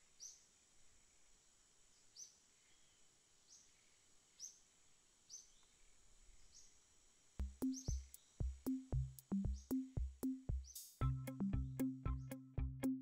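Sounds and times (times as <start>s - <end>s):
small bird chirping: 0.0s - 0.5s, 7.4s - 13.0s
faint high hiss: 0.0s - 11.0s.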